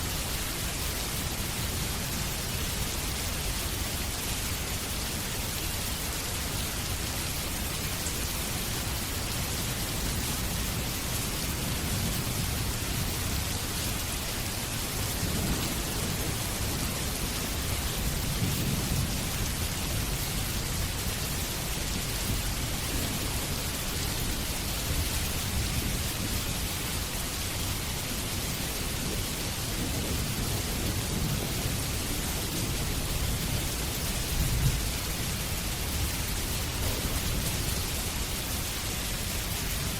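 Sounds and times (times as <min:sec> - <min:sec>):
steady rainfall: 0:00.0 - 0:39.9
distant thunder rolling: 0:36.7 - 0:38.0.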